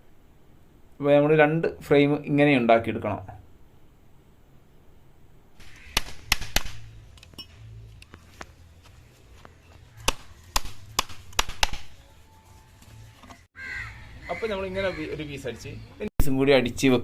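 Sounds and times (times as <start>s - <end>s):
hammer striking nails into wood: 6.0s - 6.8s, 10.1s - 11.9s.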